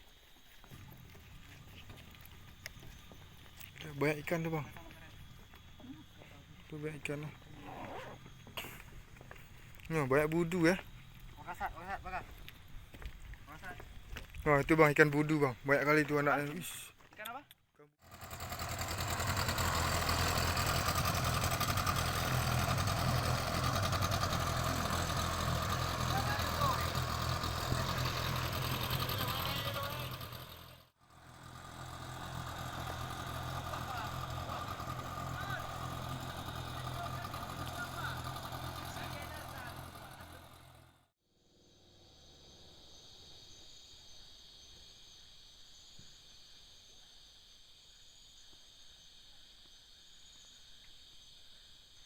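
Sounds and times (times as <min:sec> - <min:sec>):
insect chorus: 0:00.0 - 0:40.6, 0:41.3 - 0:52.0
small engine running: 0:18.0 - 0:42.9.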